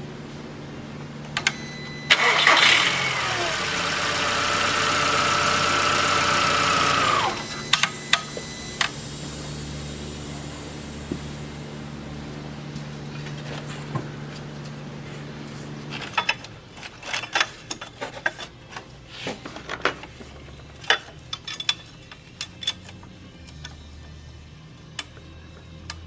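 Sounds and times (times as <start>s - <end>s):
low hum: 6.5s - 16.6s.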